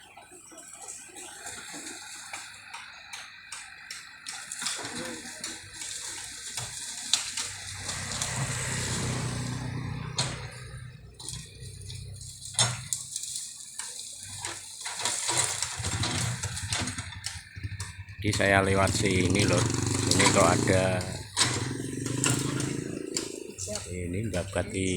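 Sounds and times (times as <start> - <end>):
bamboo foliage rustling: 4.7 - 9.8, 10.4 - 17.7
low engine hum: 5.2 - 13.5, 15.6 - 24.9.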